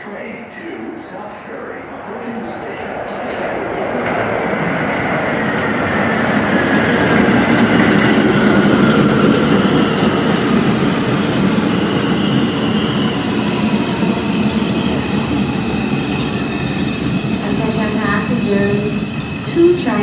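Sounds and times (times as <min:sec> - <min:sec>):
falling whine of train: 0:00.0 - 0:20.0
train wheels rumbling on rails: 0:00.0 - 0:20.0.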